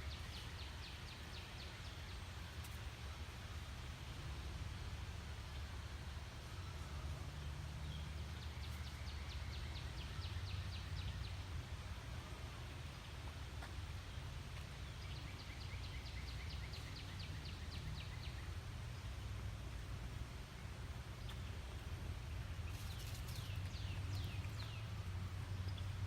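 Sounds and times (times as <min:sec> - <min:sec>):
songbird singing whistled notes: 0:14.6 - 0:18.6, 0:22.8 - 0:26.0.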